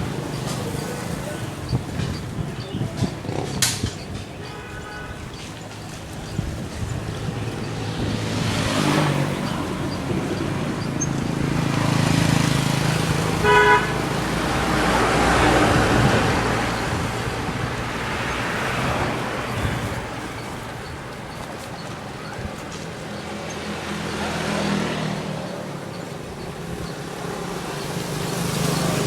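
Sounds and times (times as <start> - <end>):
vehicles passing: 0.0 - 29.0
car horn toot: 13.4 - 14.0.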